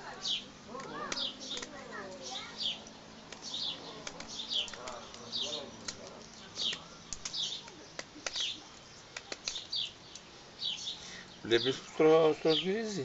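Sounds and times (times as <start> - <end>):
songbird chirping: 0.0 - 13.0
knife carving bark clicks: 0.7 - 2.2, 2.8 - 10.3.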